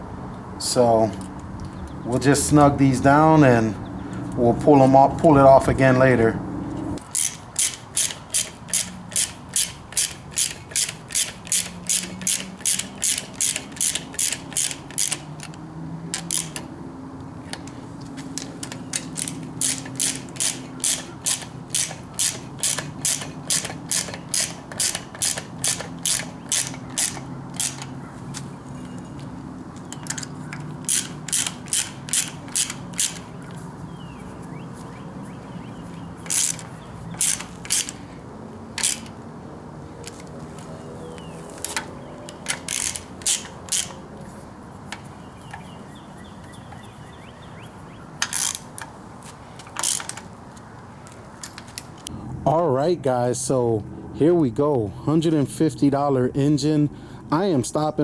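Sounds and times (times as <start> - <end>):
ratchet wrench clicking: 7.0 - 15.6, 16.2 - 16.7, 17.5 - 28.1, 28.8 - 33.6, 36.2 - 38.1, 38.8 - 39.2, 41.2 - 44.1, 48.2 - 49.0, 49.6 - 50.3.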